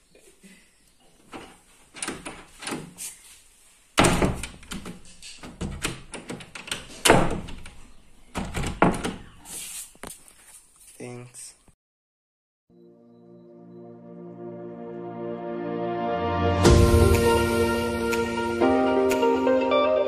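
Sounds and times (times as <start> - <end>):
door rattling: 1.3 - 3.0, 4.0 - 9.4
heavy door knocks: 4.0 - 9.3
door handle and latch clicks: 4.1 - 9.2.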